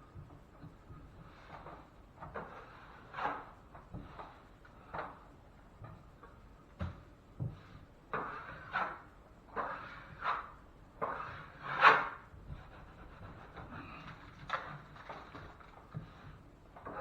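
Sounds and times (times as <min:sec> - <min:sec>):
drywall knife scraping: 0:01.1 - 0:05.2, 0:07.6 - 0:17.0.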